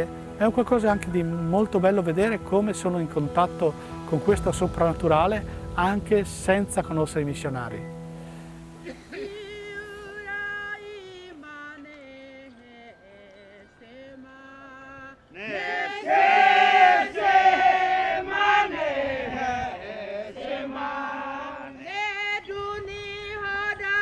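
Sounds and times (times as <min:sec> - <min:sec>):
group of voices chanting: 0:15.4 - 0:21.6.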